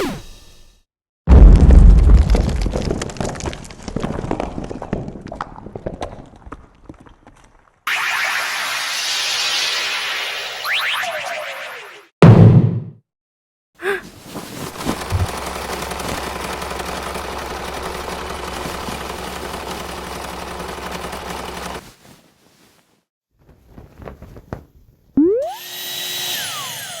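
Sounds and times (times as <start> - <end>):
rising tone: 7.9 - 12.1, 25.2 - 25.8
vacuum cleaner motor running: 25.4 - 27.0.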